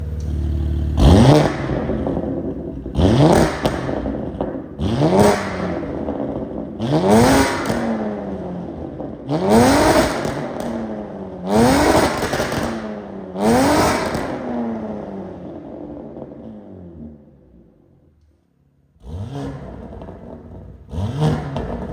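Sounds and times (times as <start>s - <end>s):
car engine revving: 0.0s - 17.6s, 19.0s - 21.9s.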